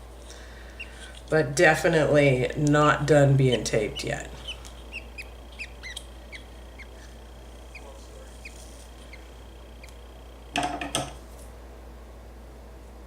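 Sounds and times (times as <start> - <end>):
bird chick cheeping: 0.6 - 1.2, 3.5 - 10.5.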